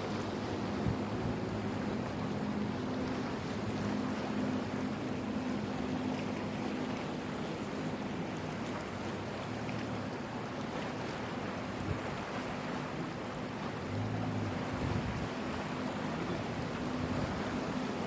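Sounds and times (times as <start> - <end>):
boat engine humming: 0.0 - 18.0
sea waves washing: 12.2 - 18.0.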